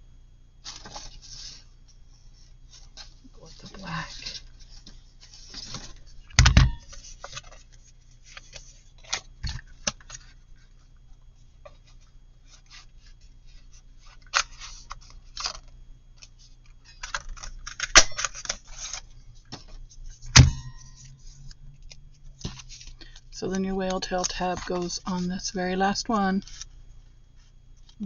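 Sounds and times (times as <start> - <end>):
paper rustling: 0.6 - 1.7, 6.8 - 10.9, 11.6 - 23.2, 23.8 - 25.6, 26.4 - 26.8.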